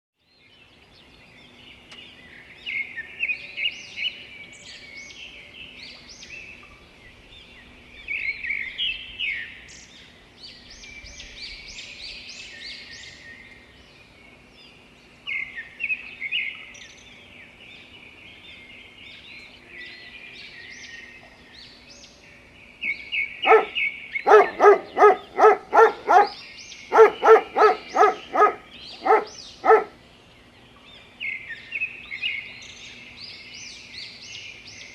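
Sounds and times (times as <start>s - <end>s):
songbirds chirping and singing: 0.3s - 34.9s
bird rapid repeated calls: 23.5s - 29.9s.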